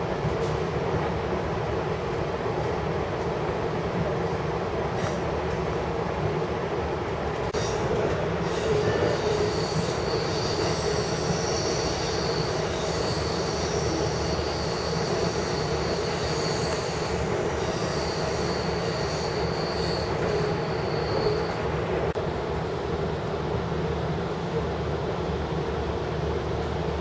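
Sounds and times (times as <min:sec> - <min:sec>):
train rolling rumble: 0:00.0 - 0:27.0
high wheel squeal: 0:07.6 - 0:21.8.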